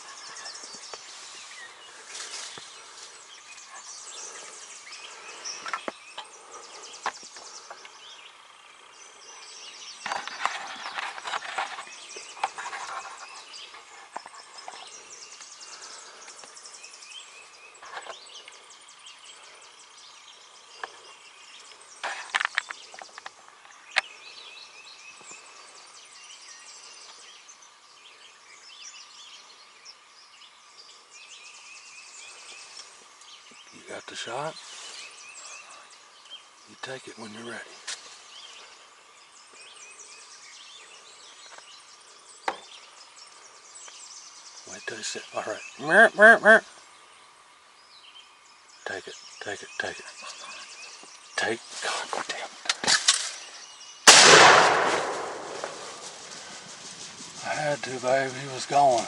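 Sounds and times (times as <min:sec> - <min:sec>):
dry leaves rustling and twigs snapping: 0:00.0 - 0:06.3, 0:10.0 - 0:16.6, 0:22.0 - 0:24.2, 0:51.6 - 0:59.0
songbirds chirping: 0:00.0 - 0:59.0.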